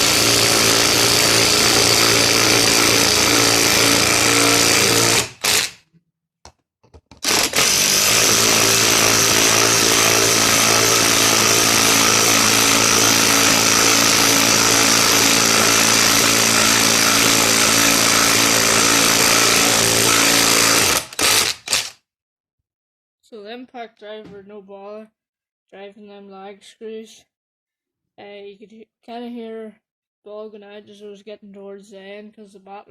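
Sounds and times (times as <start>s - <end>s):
impact driver hammering screw: 0.0s - 5.8s, 7.1s - 22.0s.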